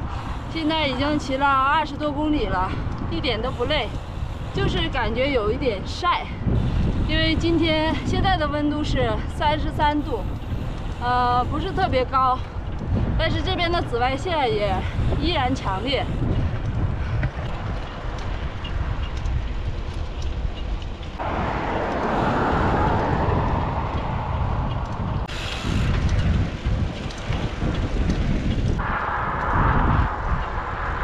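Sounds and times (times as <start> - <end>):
wind buffeting microphone: 0.0 - 31.0
hissing rush of moving air: 28.8 - 31.0.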